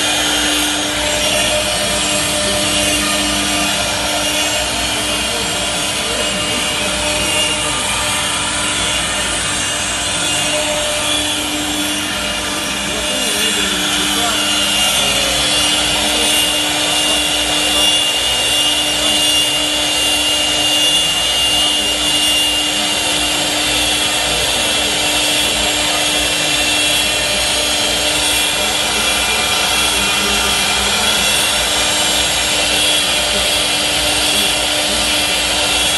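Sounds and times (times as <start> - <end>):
lathe cutting wood: 0.0 - 35.9
motor hum: 0.0 - 35.9.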